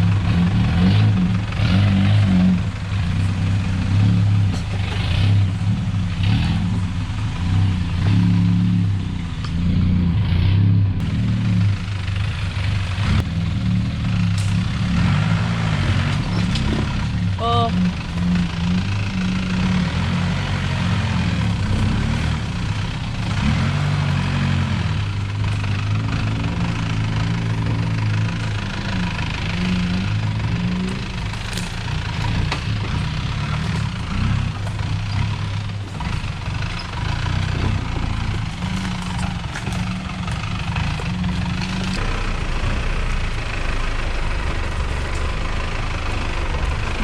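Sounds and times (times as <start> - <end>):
engine running at low revs: 0.0 - 47.0.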